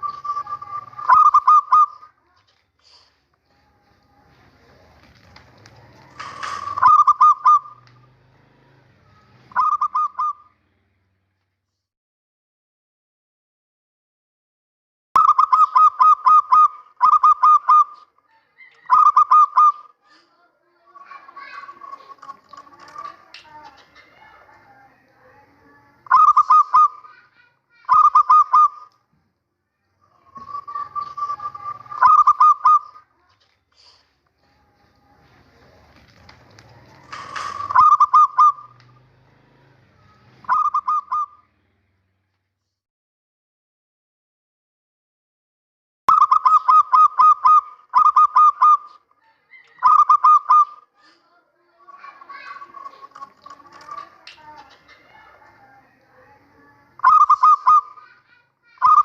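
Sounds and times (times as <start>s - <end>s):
dove cooing: 0.0s - 2.4s, 4.2s - 10.5s, 15.2s - 20.2s, 20.9s - 28.9s, 30.0s - 34.0s, 34.6s - 41.5s, 46.1s - 51.2s, 51.8s - 59.0s.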